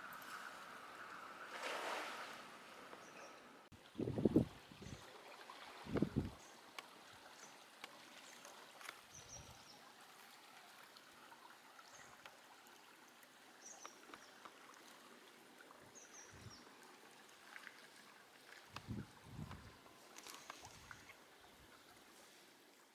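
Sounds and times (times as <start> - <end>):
faint clicks: 6.7 - 9.1, 13.7 - 14.9.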